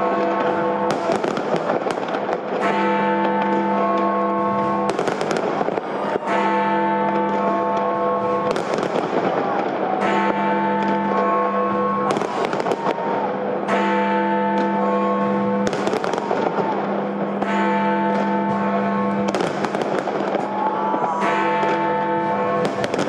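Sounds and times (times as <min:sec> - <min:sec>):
fireworks bursting: 0:00.1 - 0:03.7, 0:04.6 - 0:06.4, 0:08.4 - 0:11.3, 0:12.0 - 0:13.5, 0:15.6 - 0:18.3, 0:19.3 - 0:21.8, 0:22.6 - 0:23.0.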